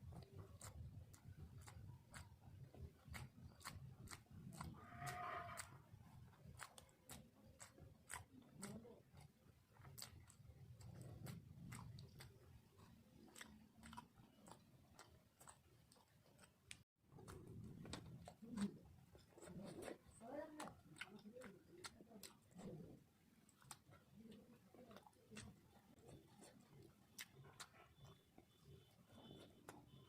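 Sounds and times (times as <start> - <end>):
quiet chewing: 0.0 - 30.0.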